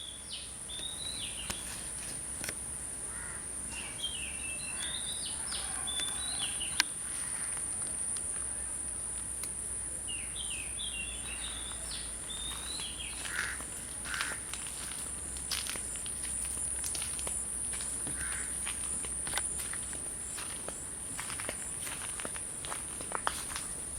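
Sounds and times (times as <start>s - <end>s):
birds chirping: 0.0s - 2.0s, 3.1s - 6.9s, 9.8s - 23.9s.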